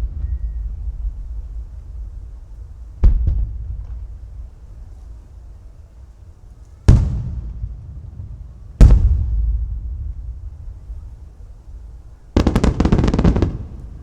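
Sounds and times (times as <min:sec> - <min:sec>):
firework shells bursting: 0:08.8 - 0:14.0.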